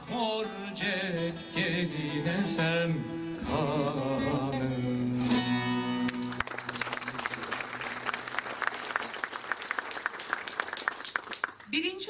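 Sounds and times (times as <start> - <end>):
folk song voices and instruments: 0.0 - 6.5
audience clapping: 5.9 - 12.0.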